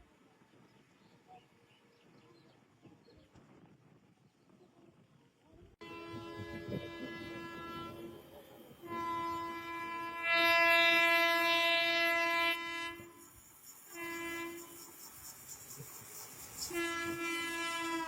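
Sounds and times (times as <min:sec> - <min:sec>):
train horn blasts: 0:05.8 - 0:15.0, 0:16.6 - 0:18.0.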